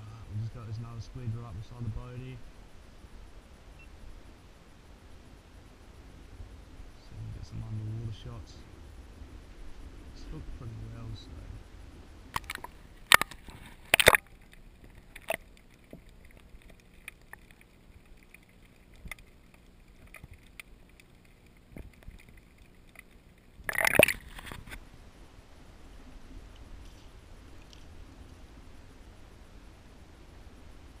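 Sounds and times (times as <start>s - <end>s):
small ticks and gurgles: 0.0s - 31.0s
water splashing and sloshing: 12.3s - 24.8s.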